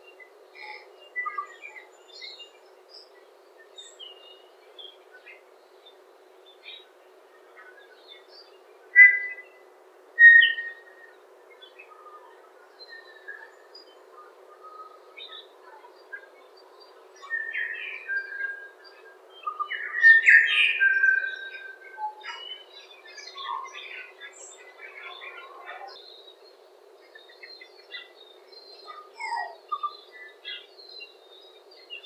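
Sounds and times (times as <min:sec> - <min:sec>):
birds singing: 0:00.0 - 0:32.0.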